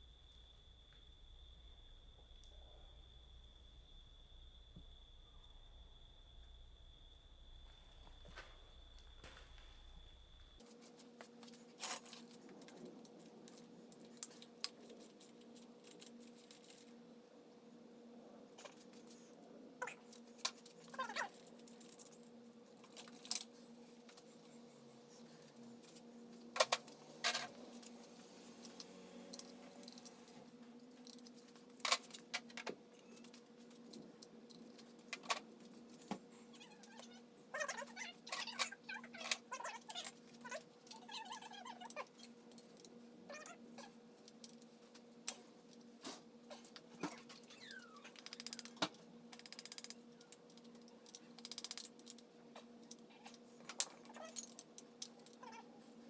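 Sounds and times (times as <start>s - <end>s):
steady low hum: 0.0s - 56.0s
tools and parts clicking: 11.4s - 17.0s, 19.8s - 24.3s, 26.6s - 35.8s, 44.2s - 44.7s, 46.6s - 55.6s.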